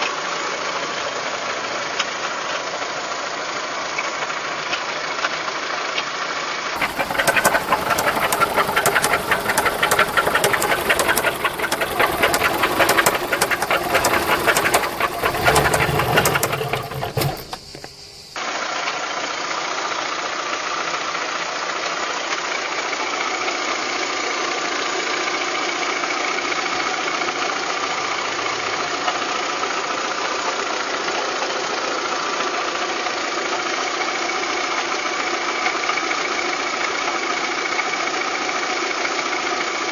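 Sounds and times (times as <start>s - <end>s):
rapid engine knocking: 6.8s - 18.3s
car engine running: 6.8s - 18.4s.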